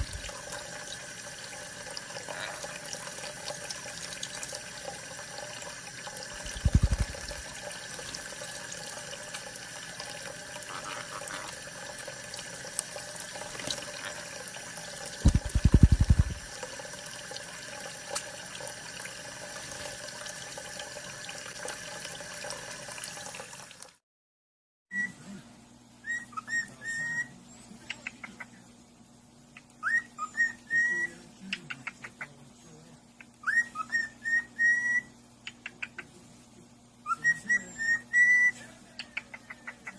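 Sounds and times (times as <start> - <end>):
running water from a tap: 0.0 - 24.0
parrot whistling: 29.8 - 31.1, 33.4 - 35.1, 37.0 - 38.6.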